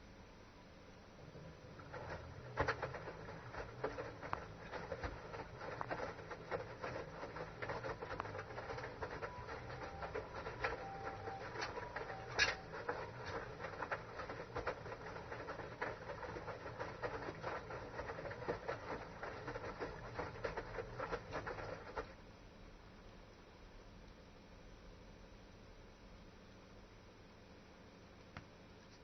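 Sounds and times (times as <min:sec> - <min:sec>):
washing machine running: 0:01.1 - 0:22.4.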